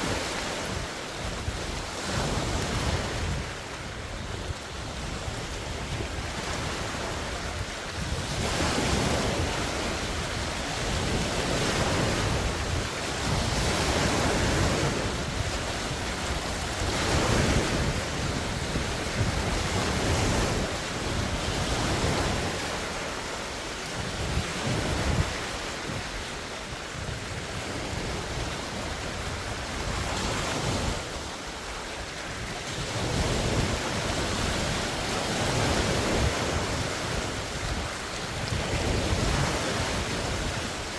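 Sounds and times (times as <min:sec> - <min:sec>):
waves breaking on shore: 0:00.0 - 0:40.9
wind buffeting microphone: 0:00.0 - 0:40.9.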